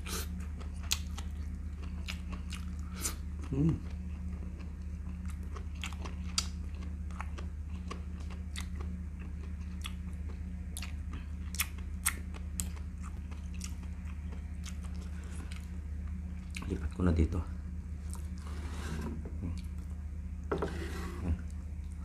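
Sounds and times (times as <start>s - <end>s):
person chewing food: 0.0s - 16.9s, 18.0s - 18.5s
steady low hum: 0.0s - 22.0s.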